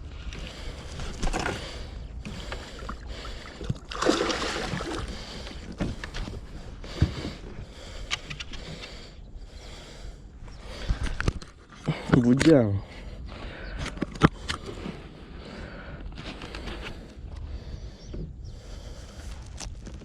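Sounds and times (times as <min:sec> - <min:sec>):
water splashing: 0:02.8 - 0:05.3.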